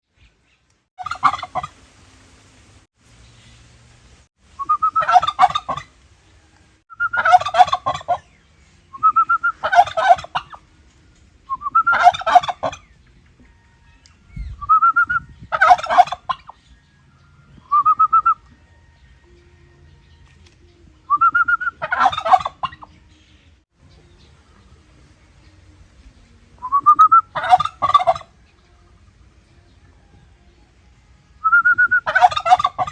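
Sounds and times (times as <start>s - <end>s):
turkeys gobbling: 1.0s - 1.9s, 4.6s - 10.7s, 11.5s - 16.8s, 21.1s - 23.0s, 26.8s - 30.2s, 31.5s - 32.9s.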